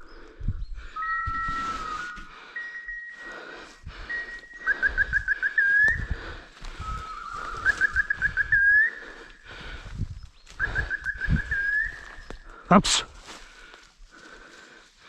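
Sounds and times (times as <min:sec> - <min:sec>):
whistle-like call with chirps: 0:00.9 - 0:09.1, 0:10.5 - 0:12.4
rustling undergrowth: 0:01.0 - 0:15.0
footsteps through undergrowth: 0:05.6 - 0:15.0.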